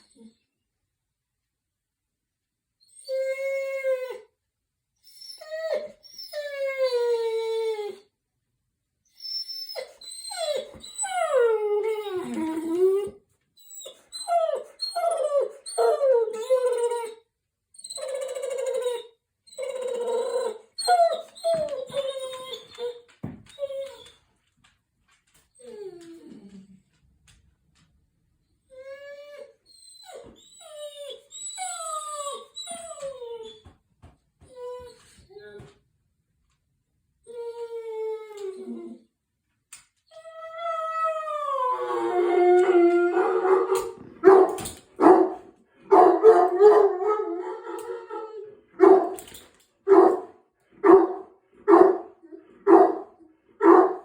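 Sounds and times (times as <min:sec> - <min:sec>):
dog howling and whining: 0:09.2 - 0:17.2, 0:17.8 - 0:24.2, 0:28.7 - 0:33.7, 0:40.1 - 0:54.0.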